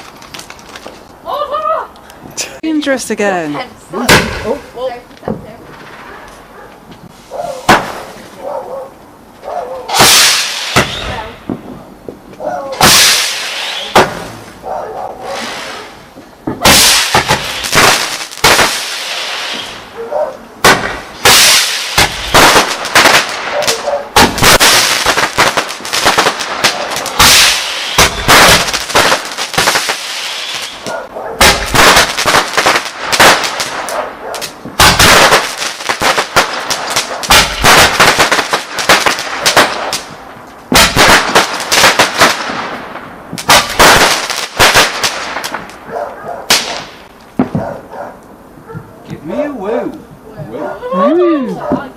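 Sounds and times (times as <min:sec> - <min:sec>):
firework bangs and crackles: 0:04.0 - 0:06.2, 0:06.9 - 0:08.4, 0:09.9 - 0:14.6, 0:15.3 - 0:20.0, 0:20.6 - 0:47.9.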